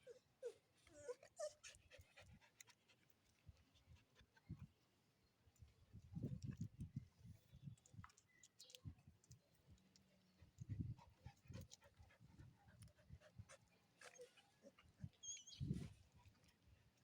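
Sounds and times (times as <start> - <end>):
dog panting faintly: 1.1 - 4.7, 10.3 - 16.5.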